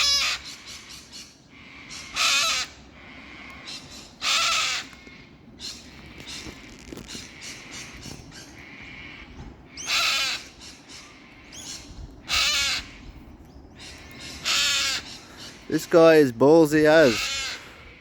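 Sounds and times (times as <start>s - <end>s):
cockatoo screeching: 0.0s - 0.8s, 1.9s - 2.8s, 4.2s - 4.9s, 9.8s - 10.6s, 11.6s - 13.1s, 14.4s - 15.8s, 16.9s - 17.7s.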